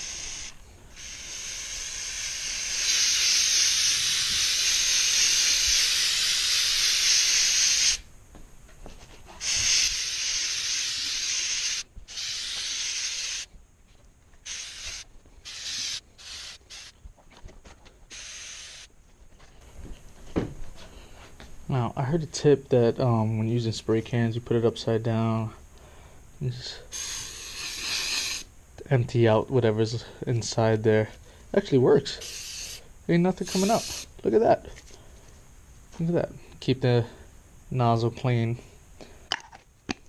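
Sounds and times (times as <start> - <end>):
aerosol can spraying: 0.0 - 8.0, 9.4 - 13.5, 14.4 - 17.0, 18.1 - 18.9, 26.9 - 28.5, 32.2 - 32.8, 33.4 - 34.2.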